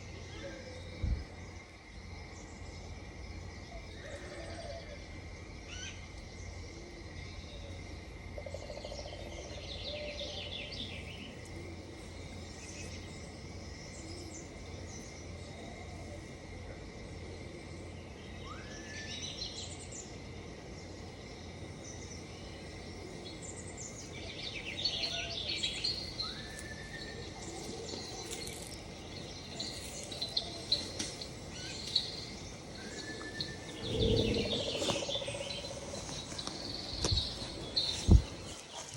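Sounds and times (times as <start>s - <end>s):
high insect drone: 0.0s - 38.9s
birds chirping and calling: 23.5s - 38.9s
low rumble: 33.4s - 37.4s.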